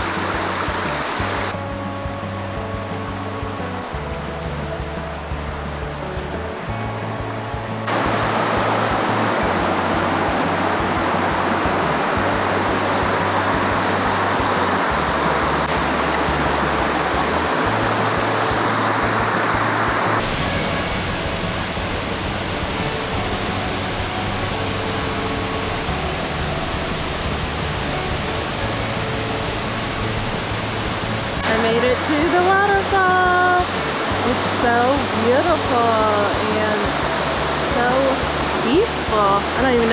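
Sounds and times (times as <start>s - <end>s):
brook and waterfall rushing: 0.0s - 39.9s
low bass line: 0.0s - 39.9s
soft background music: 0.0s - 39.9s.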